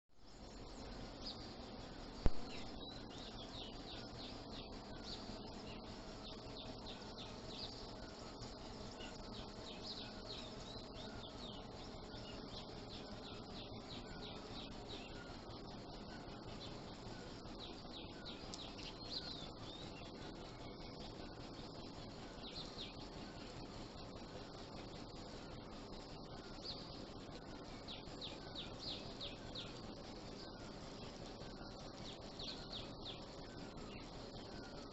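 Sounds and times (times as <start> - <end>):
background hiss: 0.1 - 34.9
small birds chirping: 0.2 - 34.9.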